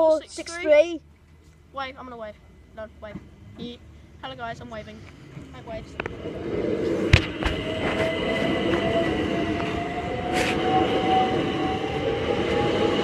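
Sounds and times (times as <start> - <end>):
electric train motors whining: 6.0 - 13.0.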